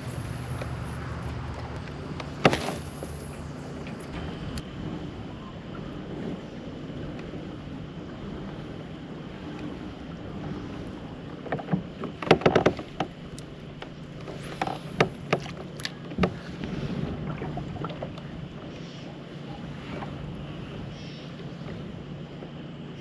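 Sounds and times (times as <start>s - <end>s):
gear knocking in kayak: 0.0s - 18.7s
sharp clicks of gear: 11.5s - 16.3s.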